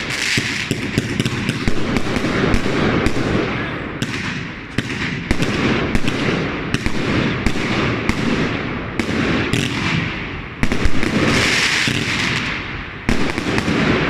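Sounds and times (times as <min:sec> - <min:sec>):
firework hissing: 0:00.0 - 0:14.0
firework shots and bursts: 0:00.0 - 0:14.0.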